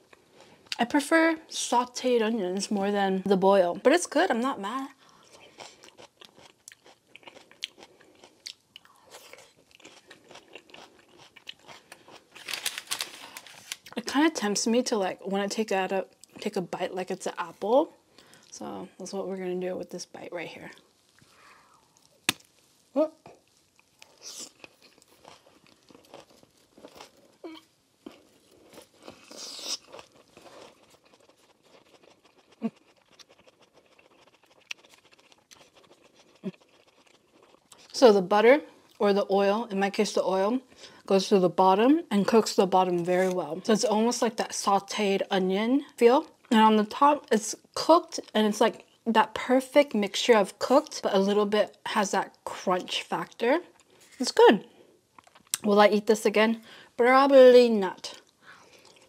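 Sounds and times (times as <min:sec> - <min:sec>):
chewing crunchy food: 0:05.0 - 0:14.0, 0:23.3 - 0:38.0, 0:55.1 - 0:55.7, 0:58.1 - 0:59.0.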